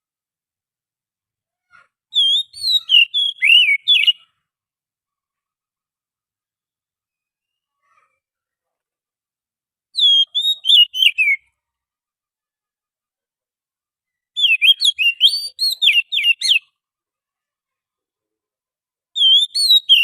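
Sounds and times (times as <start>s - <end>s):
bird singing whistled notes: 2.1s - 4.3s, 7.1s - 7.7s, 10.0s - 11.5s, 14.1s - 16.7s, 19.2s - 20.0s.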